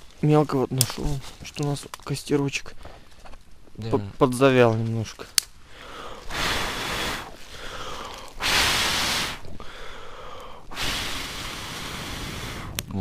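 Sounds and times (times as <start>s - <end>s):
person blowing on embers: 5.6s - 13.0s.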